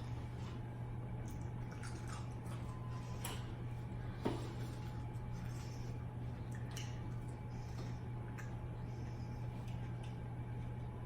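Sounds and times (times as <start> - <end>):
steady low hum: 0.0 - 11.0
chewing smacks: 1.2 - 3.2, 4.8 - 10.8.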